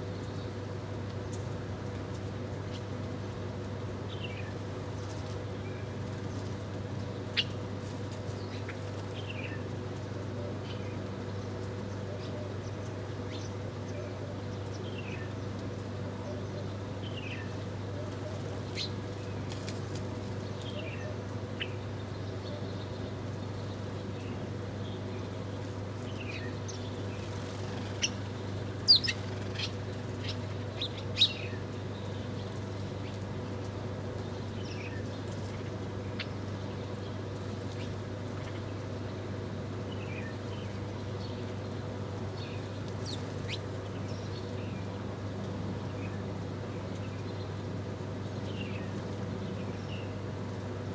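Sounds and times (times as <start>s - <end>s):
small birds chirping: 26.1s - 33.2s, 42.3s - 44.9s.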